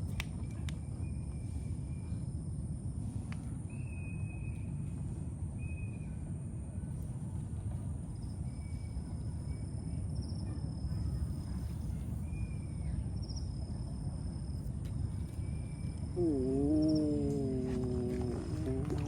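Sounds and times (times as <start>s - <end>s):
low rumble: 16.1s - 19.0s.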